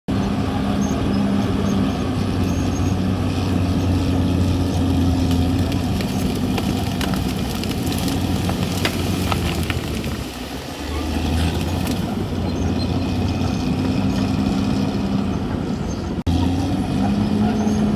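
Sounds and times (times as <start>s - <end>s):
bulldozer diesel engine running: 0.0s - 17.9s.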